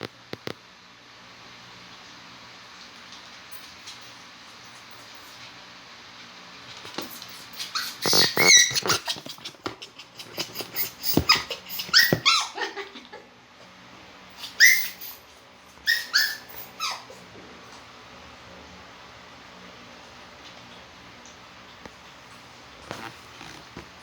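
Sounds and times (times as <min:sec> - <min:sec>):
dog whimpering and yelping: 0:07.3 - 0:13.2, 0:14.4 - 0:15.2, 0:15.8 - 0:17.3.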